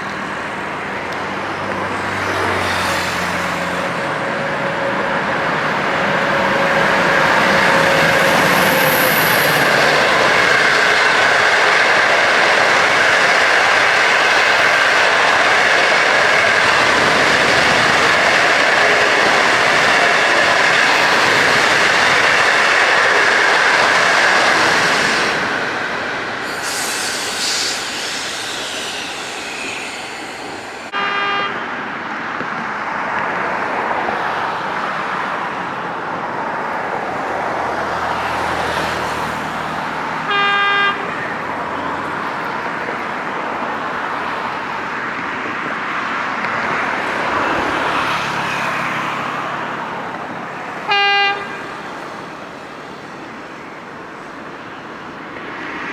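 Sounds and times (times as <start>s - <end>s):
train wheels on rails: 0.0s - 55.9s
locomotive horn toots: 30.9s - 31.7s, 40.3s - 41.3s, 50.8s - 51.9s.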